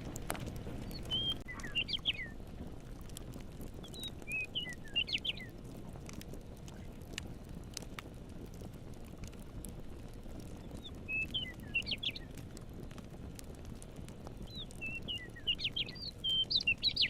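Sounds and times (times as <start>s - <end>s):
campfire crackling and popping: 0.0s - 17.0s
songbird chirping: 0.8s - 2.4s, 3.8s - 5.6s, 10.6s - 12.4s, 14.5s - 17.0s.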